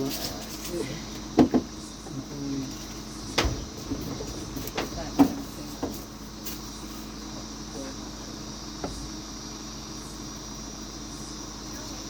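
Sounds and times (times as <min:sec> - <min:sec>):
sharp knocks and clunks: 0:01.2 - 0:02.2, 0:02.8 - 0:06.6, 0:08.8 - 0:09.1.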